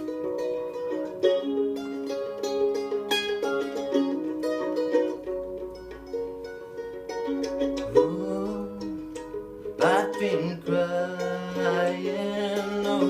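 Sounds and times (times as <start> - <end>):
plucked string instrument melody: 0.0 - 13.0
person singing: 7.7 - 13.0.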